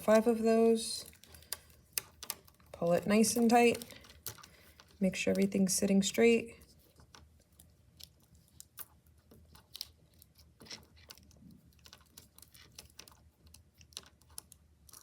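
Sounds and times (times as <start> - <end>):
plastic beads clicking: 1.1 - 2.7, 7.9 - 15.0.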